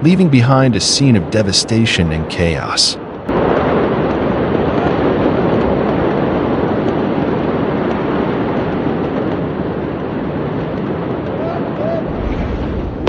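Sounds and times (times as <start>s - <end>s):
rushing roar after explosion: 3.2s - 13.0s.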